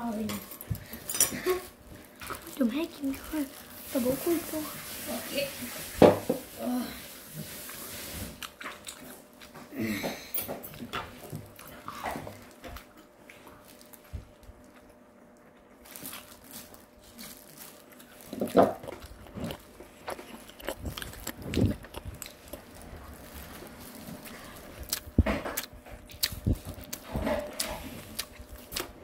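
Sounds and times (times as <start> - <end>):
person biting and chewing: 15.9 - 29.0.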